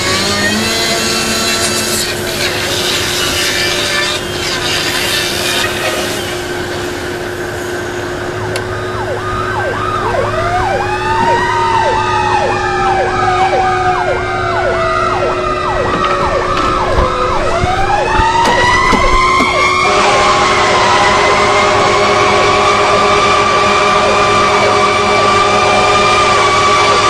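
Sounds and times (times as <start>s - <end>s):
siren wail: 5.4s - 27.0s
siren yelp: 8.0s - 27.0s.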